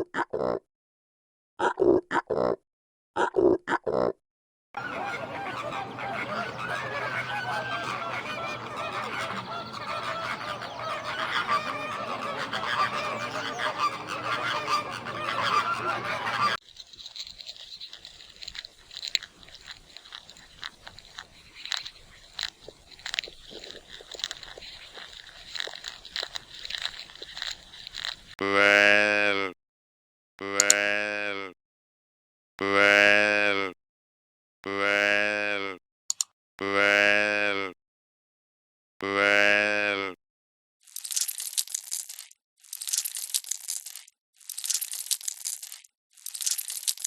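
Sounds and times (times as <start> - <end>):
geese honking: 4.8 - 28.4
sharp clicks and crunches: 16.6 - 28.4, 40.9 - 47.0.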